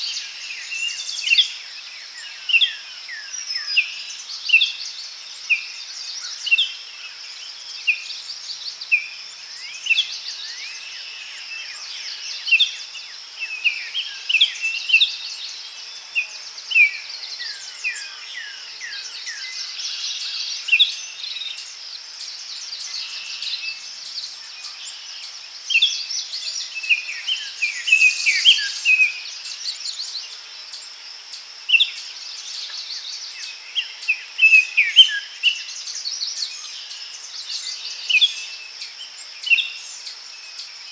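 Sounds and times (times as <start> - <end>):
high insect drone: 0.0 - 40.9
small birds chirping and whistling: 7.7 - 30.9, 31.6 - 40.9.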